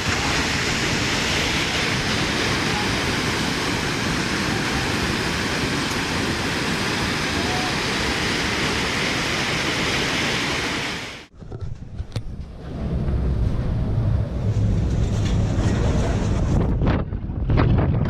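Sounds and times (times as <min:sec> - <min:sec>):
river water rushing: 0:00.0 - 0:11.3.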